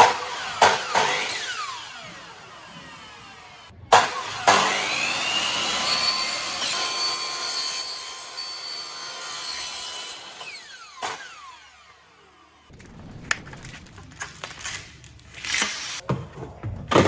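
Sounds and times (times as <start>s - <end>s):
power tool cutting with high whine: 0.1s - 12.7s.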